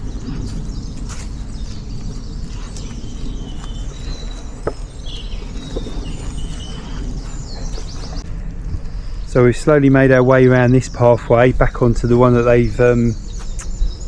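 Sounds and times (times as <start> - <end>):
birds singing: 0.0 - 14.0
steady low rumble: 0.0 - 14.0.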